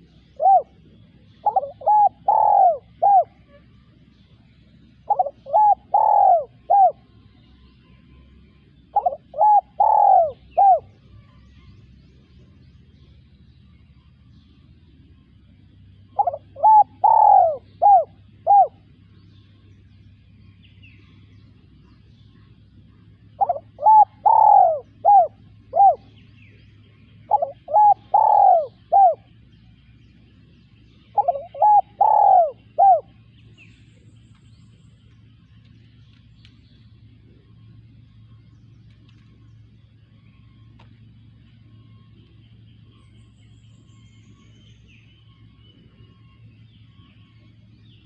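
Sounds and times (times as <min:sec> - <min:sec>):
dove cooing: 0:00.0 - 0:07.3, 0:08.8 - 0:11.0, 0:16.0 - 0:19.0, 0:22.9 - 0:29.4, 0:31.0 - 0:33.4.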